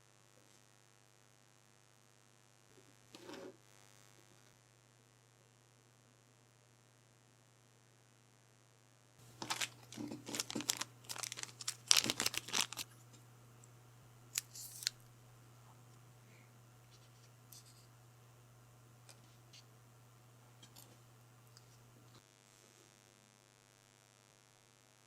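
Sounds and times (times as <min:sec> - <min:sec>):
packaging crinkling and tearing: 0:09.2 - 0:13.0, 0:14.4 - 0:15.0.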